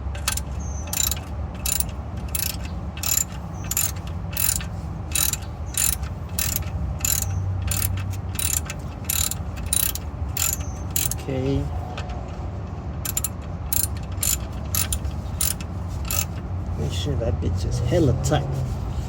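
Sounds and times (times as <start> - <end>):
ratchet wrench clicking: 0.0 - 11.7, 13.0 - 16.4.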